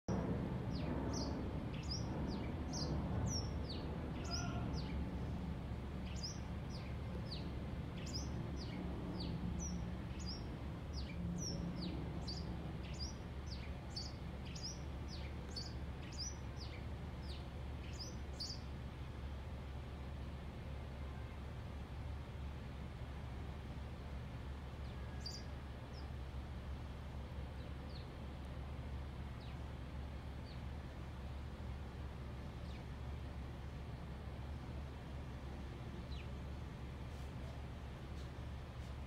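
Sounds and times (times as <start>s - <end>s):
low background rumble: 0.1s - 39.0s
small bird chirping: 6.0s - 18.7s.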